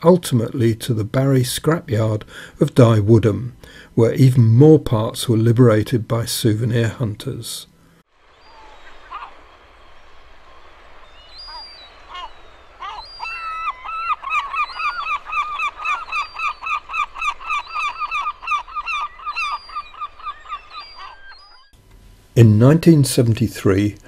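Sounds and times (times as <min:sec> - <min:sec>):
large bird calling: 0:08.2 - 0:21.8.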